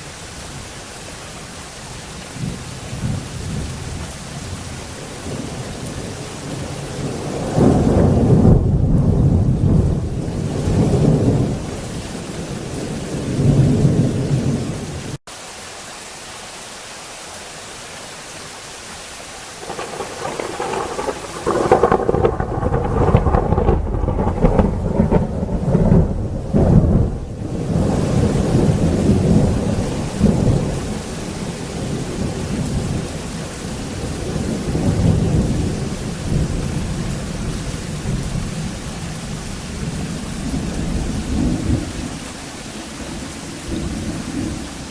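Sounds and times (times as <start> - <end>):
heavy rain: 0.0 - 44.9
rolling thunder: 5.2 - 15.1, 19.6 - 33.2, 33.9 - 42.2.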